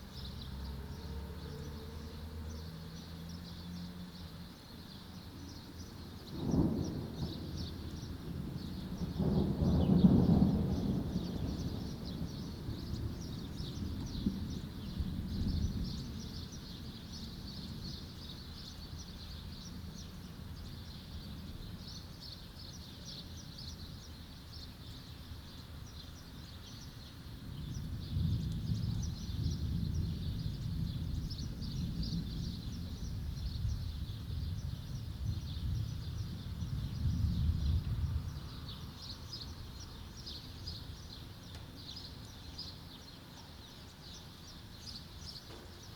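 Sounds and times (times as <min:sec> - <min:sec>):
small birds chirping: 0:00.0 - 0:45.9
rolling thunder: 0:06.3 - 0:16.5, 0:27.4 - 0:40.3.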